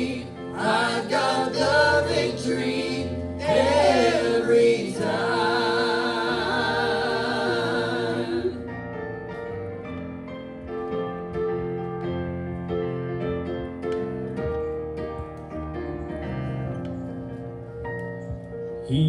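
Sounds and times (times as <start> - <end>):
gospel choir singing: 0.0 - 8.9.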